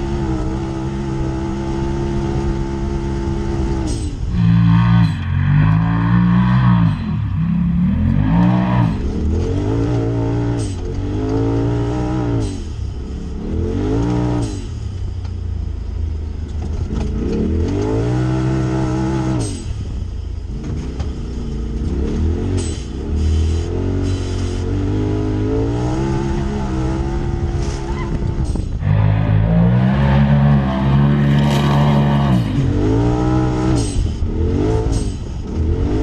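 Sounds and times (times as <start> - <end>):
engine revving: 0.0 - 14.8, 16.7 - 19.9, 20.5 - 36.0.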